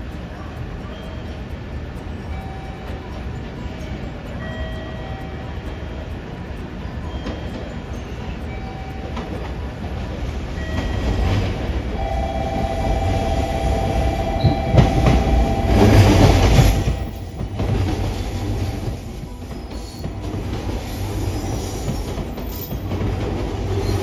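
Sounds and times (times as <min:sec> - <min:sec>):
thin steady whine: 0:00.0 - 0:24.0
train rumbling past: 0:00.0 - 0:24.0.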